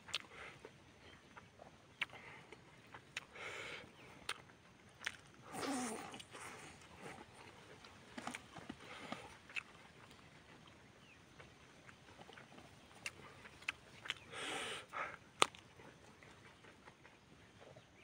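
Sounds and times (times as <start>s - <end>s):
man chewing with mouth clicks: 0.0s - 18.0s
sniff: 14.3s - 15.2s.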